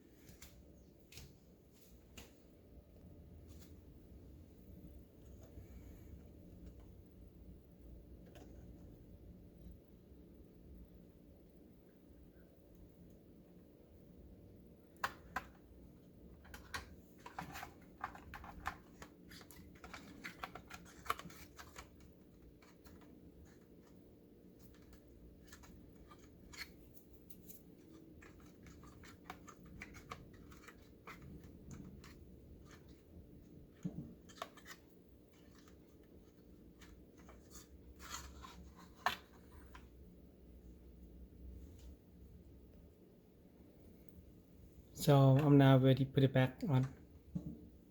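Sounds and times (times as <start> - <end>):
plastic parts clicking and scraping: 16.4 - 24.0, 27.8 - 33.0.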